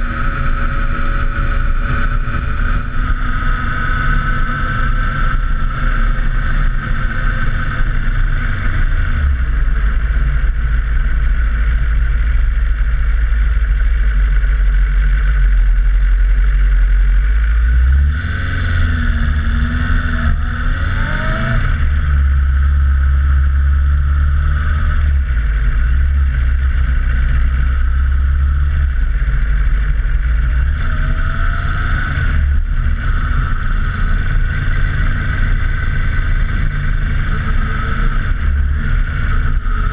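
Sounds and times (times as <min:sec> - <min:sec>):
motorcycle engine revving: 0:00.0 - 0:39.9
wind rumble: 0:00.0 - 0:39.9.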